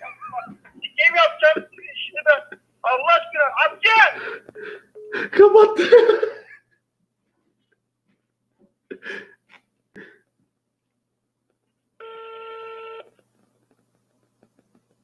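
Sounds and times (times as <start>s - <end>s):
telephone ringback beep: 12.0s - 13.0s.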